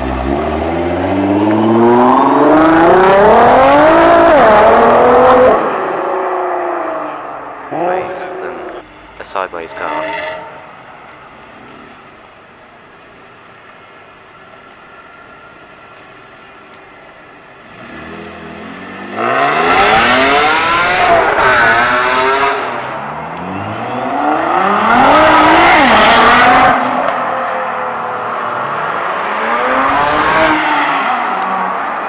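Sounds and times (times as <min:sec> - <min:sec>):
car engine revving: 0:00.0 - 0:10.7, 0:17.6 - 0:32.0.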